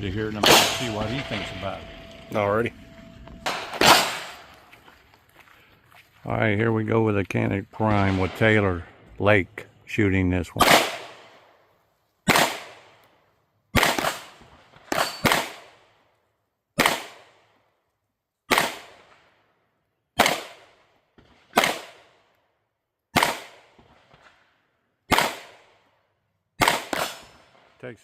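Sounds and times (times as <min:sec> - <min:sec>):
pistol shots: 0:00.4 - 0:01.2, 0:03.4 - 0:04.7, 0:10.6 - 0:11.5, 0:12.3 - 0:13.0, 0:13.7 - 0:15.9, 0:16.8 - 0:17.4, 0:18.5 - 0:19.0, 0:20.2 - 0:22.2, 0:23.1 - 0:24.0, 0:25.1 - 0:25.8, 0:26.6 - 0:27.6.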